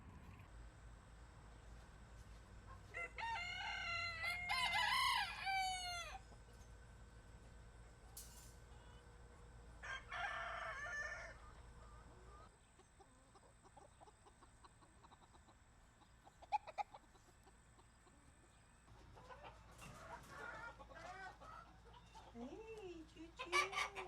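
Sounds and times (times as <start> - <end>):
hens clucking: 0.0 - 8.0, 10.3 - 24.0
rooster crowing: 2.9 - 6.2, 9.8 - 11.9.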